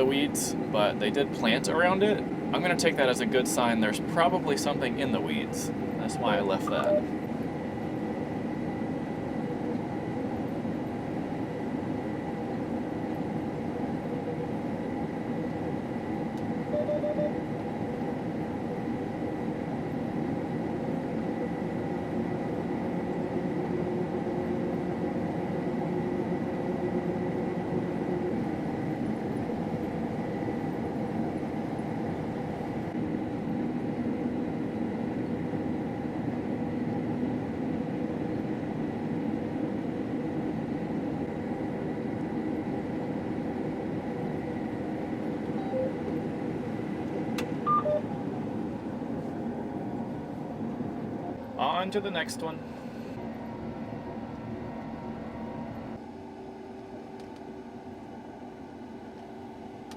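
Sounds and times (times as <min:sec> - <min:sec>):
faint high whine: 0:00.0 - 0:33.9, 0:44.0 - 0:48.1
combine harvester drone: 0:00.0 - 0:59.9.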